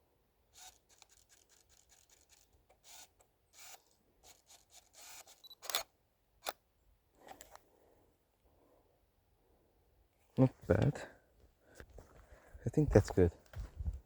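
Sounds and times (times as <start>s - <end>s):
camera handling clicks: 5.0s - 6.6s
camera shutter click: 5.0s - 6.6s.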